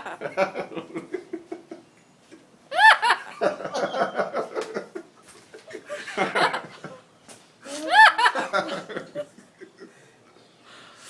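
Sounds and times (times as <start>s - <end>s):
parrot laughing: 0.0s - 1.1s, 2.7s - 4.5s, 7.7s - 9.3s.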